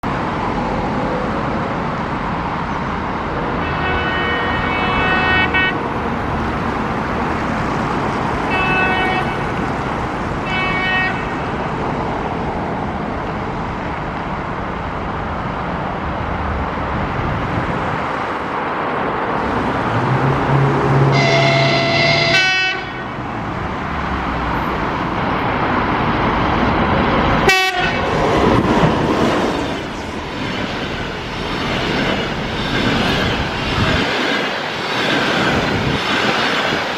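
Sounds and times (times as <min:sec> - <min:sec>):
passenger train rumbling: 0:00.0 - 0:36.9
locomotive horn blasts: 0:03.6 - 0:05.8, 0:08.5 - 0:09.4, 0:20.6 - 0:23.1, 0:27.5 - 0:28.0.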